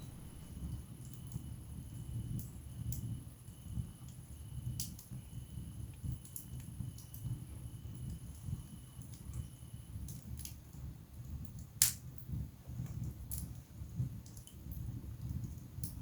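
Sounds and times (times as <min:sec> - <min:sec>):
burning logs crackling: 0:00.0 - 0:01.4
fire flames rumbling: 0:00.0 - 0:10.0.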